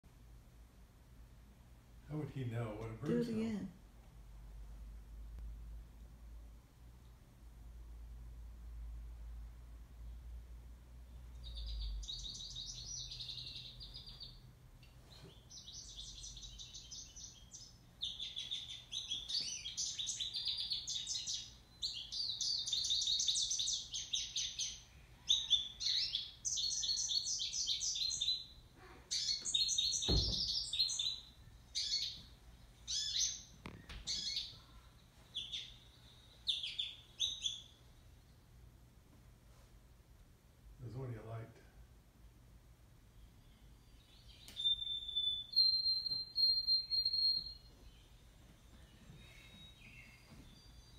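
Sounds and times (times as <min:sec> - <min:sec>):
bird chirping: 0:11.0 - 0:38.8, 0:43.1 - 0:50.9
soft thump: 0:30.1 - 0:30.5.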